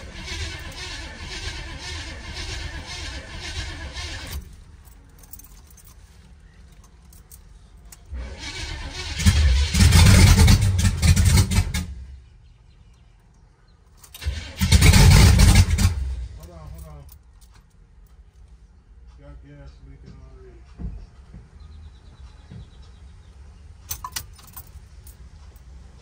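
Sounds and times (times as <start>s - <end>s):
starter cranking engine: 0.0s - 4.5s, 8.1s - 11.9s, 14.1s - 16.5s.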